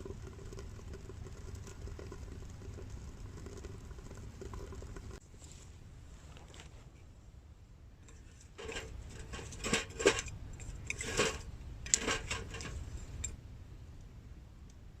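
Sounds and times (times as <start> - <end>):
rustling and clattering objects: 8.1 - 13.0.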